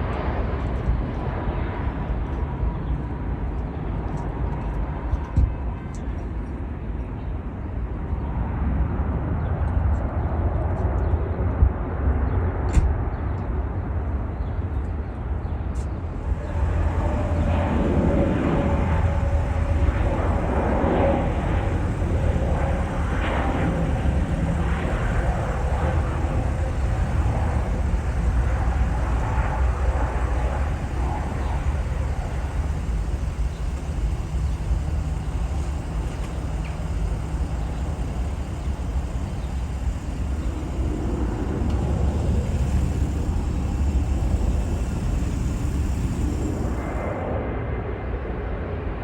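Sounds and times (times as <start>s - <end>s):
jet engines rumbling: 10.2s - 49.0s.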